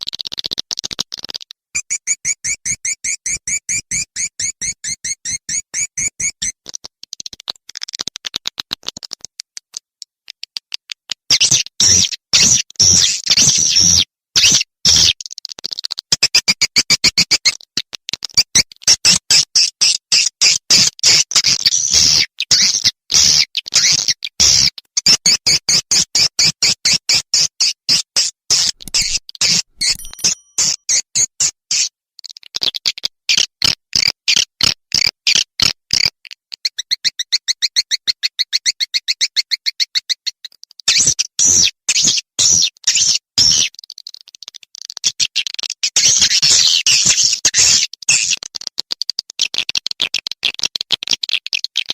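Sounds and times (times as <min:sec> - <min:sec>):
fast clicking trill: 0:01.3 - 0:06.6, 0:29.8 - 0:30.8
buzzy chirp: 0:01.8 - 0:06.5
swiftlet chirping clicks: 0:29.8 - 0:30.7.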